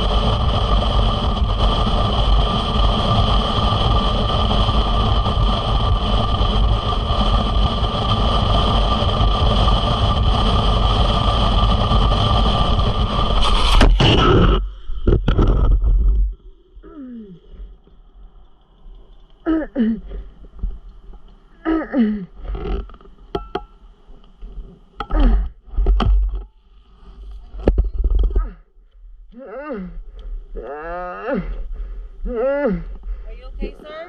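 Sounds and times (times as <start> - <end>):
motorcycle engine at speed: 0.0 - 14.5
road noise: 0.0 - 21.6.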